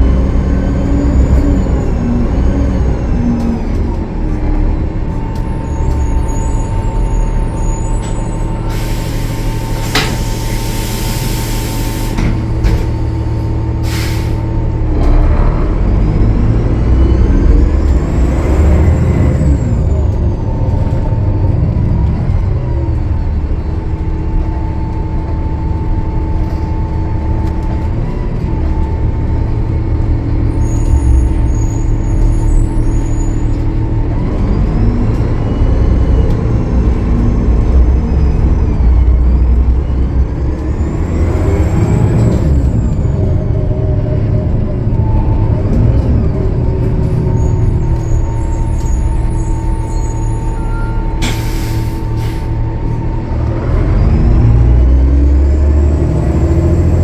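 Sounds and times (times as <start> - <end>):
diesel bus engine: 0.0 - 57.0
air brake hiss: 8.6 - 12.4, 13.8 - 14.5, 51.2 - 52.6.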